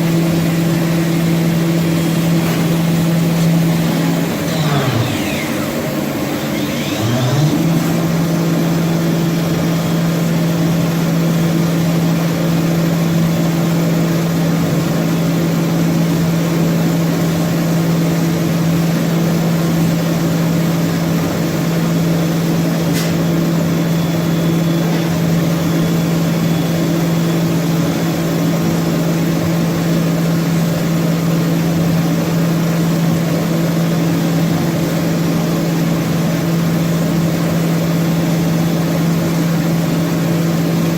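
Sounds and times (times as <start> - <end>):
machine motor hum: 0.0 - 15.5.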